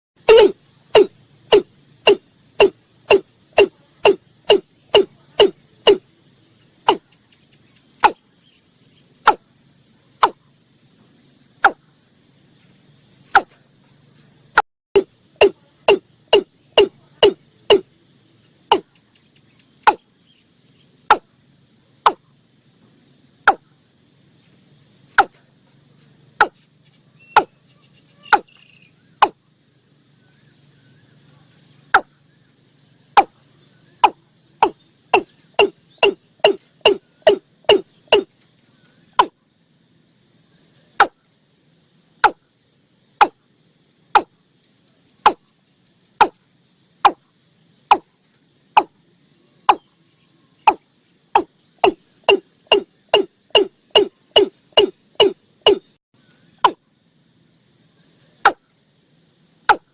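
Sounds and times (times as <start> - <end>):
faint insects buzzing: 0.2 - 59.9
bird calling short notes: 0.3 - 6.0.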